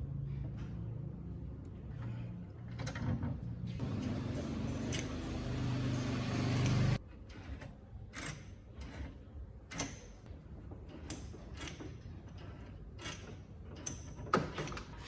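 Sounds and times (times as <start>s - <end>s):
motor humming: 3.8s - 7.0s.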